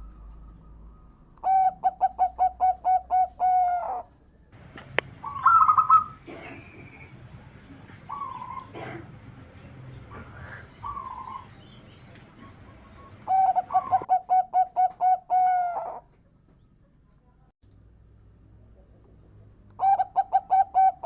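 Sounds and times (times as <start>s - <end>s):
faint high bird calls: 0.0s - 17.4s, 19.8s - 21.0s
dove cooing: 1.4s - 16.1s, 19.8s - 21.0s
short trilled bird call: 5.2s - 6.7s.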